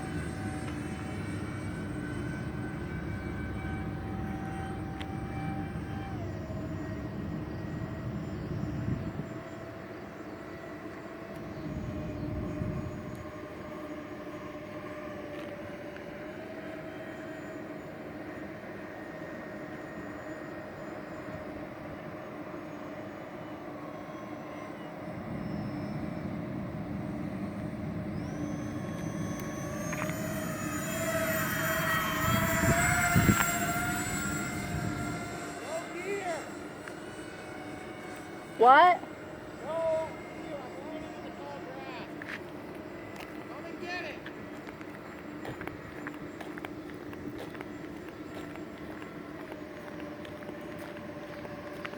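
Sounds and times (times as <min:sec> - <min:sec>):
electric ducted fans whining: 0:00.0 - 0:51.9
gusty low rumble: 0:29.4 - 0:35.4.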